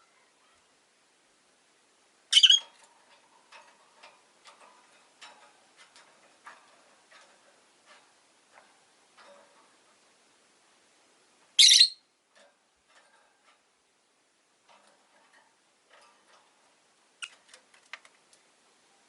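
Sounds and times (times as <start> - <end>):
parrot shrill call: 2.3 - 2.6, 11.6 - 12.0
faint clicks: 14.7 - 18.5.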